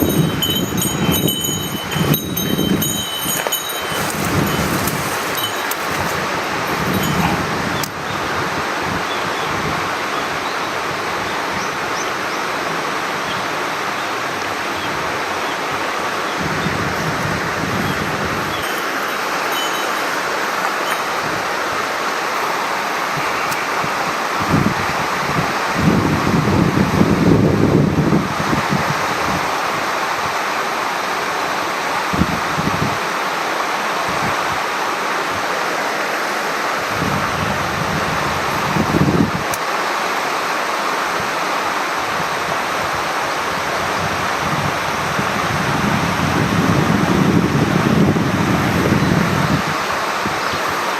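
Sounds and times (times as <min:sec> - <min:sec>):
wind buffeting microphone: 0:00.0 - 0:10.0, 0:16.3 - 0:21.9, 0:23.2 - 0:29.6, 0:36.8 - 0:39.6, 0:42.1 - 0:50.8
stream water rushing: 0:00.0 - 0:50.9.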